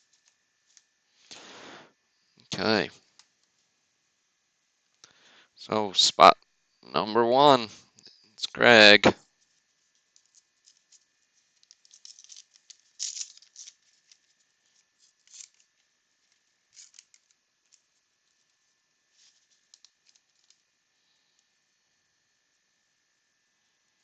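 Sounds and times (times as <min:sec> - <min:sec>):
wrapper tearing and crinkling: 0:10.2 - 0:15.6, 0:16.3 - 0:17.4.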